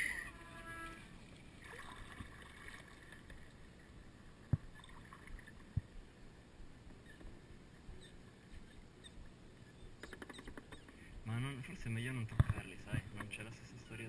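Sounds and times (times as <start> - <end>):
faint background noise: 0.0 - 14.0.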